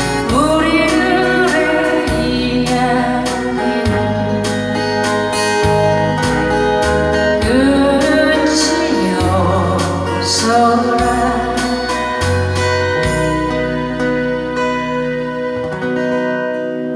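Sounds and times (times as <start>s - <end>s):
person singing: 0.0s - 5.4s, 7.3s - 14.5s
bass line: 0.0s - 16.9s
guitar strums: 0.0s - 16.9s
sustained keyboard chords: 0.0s - 16.9s.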